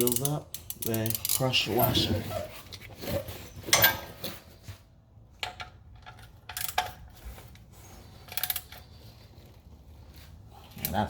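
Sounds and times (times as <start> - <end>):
ratchet wrench clicking: 0.0 - 1.5.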